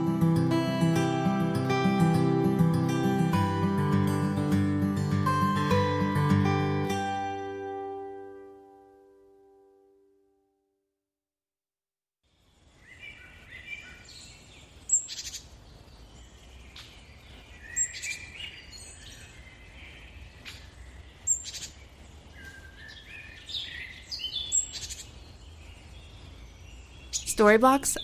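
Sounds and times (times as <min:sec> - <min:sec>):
birds chirping and whistling: 0:12.8 - 0:28.0.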